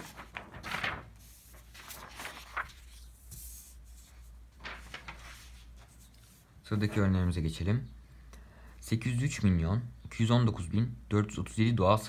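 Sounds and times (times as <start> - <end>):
paper rustling: 0.0 - 7.4.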